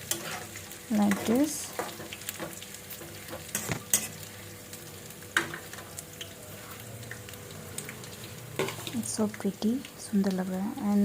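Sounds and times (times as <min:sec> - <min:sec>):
spatula scraping a pan: 0:00.0 - 0:02.1
chillies sizzling in oil: 0:00.0 - 0:11.0.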